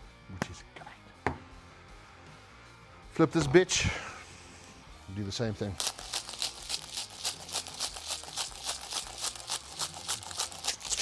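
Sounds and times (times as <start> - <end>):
spice shaker shaking: 5.7 - 11.0.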